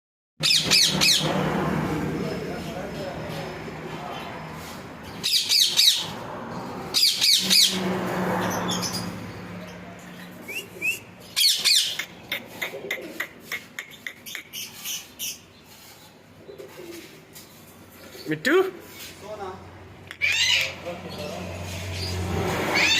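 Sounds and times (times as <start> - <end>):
parrot chirping: 0.4 - 1.4, 5.0 - 6.2, 6.9 - 7.8, 8.4 - 15.6, 20.1 - 20.8
parrot squawking: 0.4 - 1.4, 5.2 - 6.2, 6.9 - 7.8, 10.4 - 15.4, 20.1 - 20.8.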